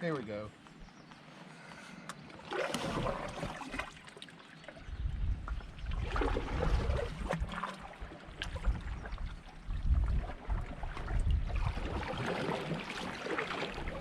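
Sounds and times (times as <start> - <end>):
paddle splashing in water: 2.2 - 14.0
wind rumble on microphone: 4.8 - 12.9.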